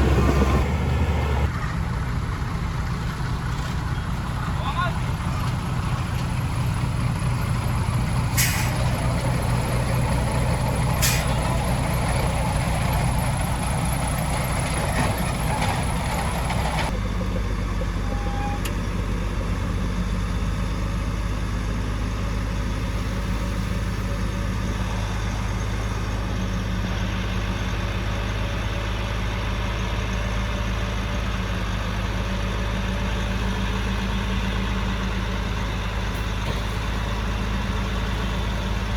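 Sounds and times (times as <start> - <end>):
heavy diesel engine running: 0.0 - 38.9
sharp air hisses: 8.4 - 8.8.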